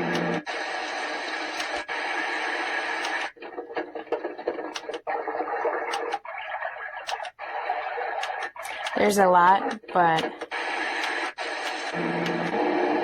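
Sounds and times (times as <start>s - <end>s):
scattered clicks: 0.0s - 0.5s, 1.2s - 2.0s, 2.9s - 5.1s, 5.9s - 6.3s, 7.0s - 7.4s, 8.2s - 12.6s.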